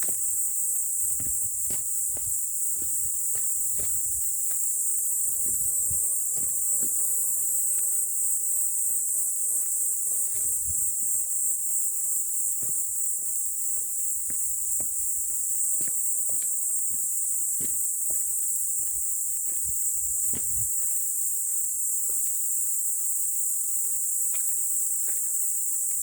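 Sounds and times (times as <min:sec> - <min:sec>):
insects chirping: 0:00.0 - 0:26.0.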